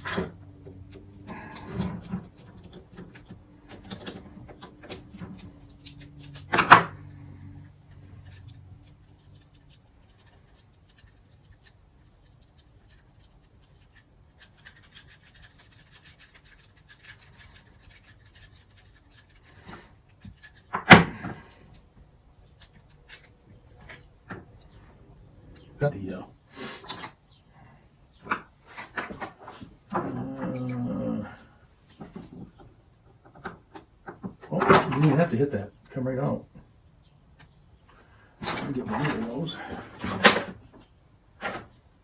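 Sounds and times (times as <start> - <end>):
hand tools scraping metal parts: 0.0 - 11.3.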